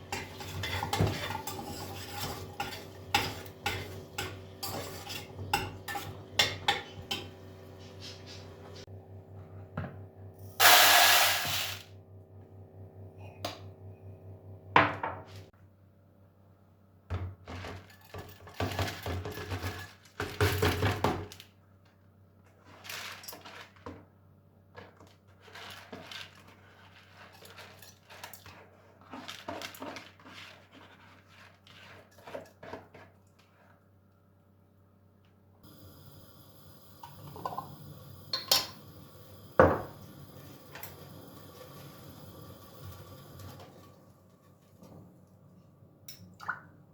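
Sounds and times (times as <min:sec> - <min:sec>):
utensils and dishes clinking: 0:00.0 - 0:08.8, 0:38.3 - 0:38.9.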